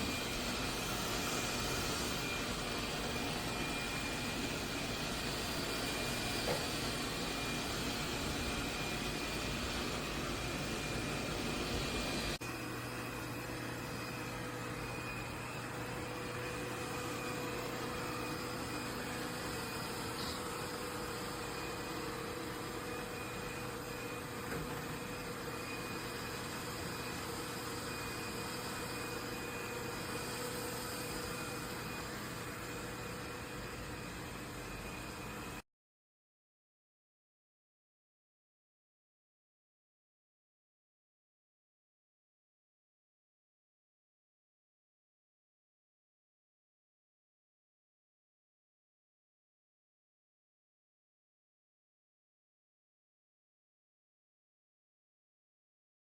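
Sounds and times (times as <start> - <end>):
robot vacuum motor whirring: 0.0 - 35.6.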